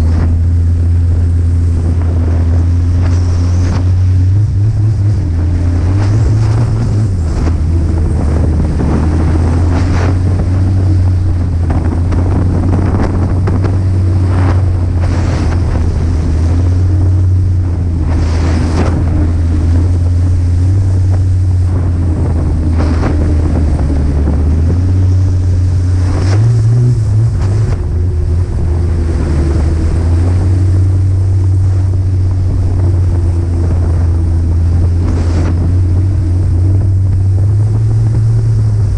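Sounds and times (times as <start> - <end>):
snowmobile engine running: 0.0 - 38.9
wind buffeting microphone: 0.0 - 38.9.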